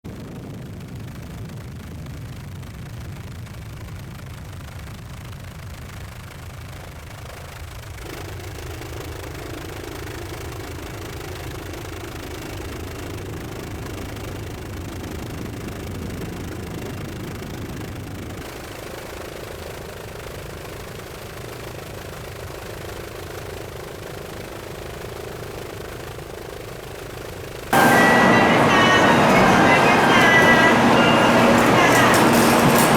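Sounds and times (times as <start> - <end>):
helicopter engine and rotor drone: 8.0 - 32.9.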